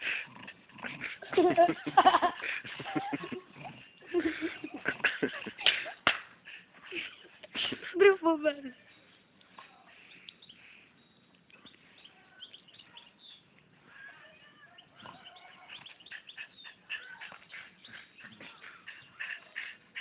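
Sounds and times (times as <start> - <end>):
faint bird chirps: 14.7 - 19.2.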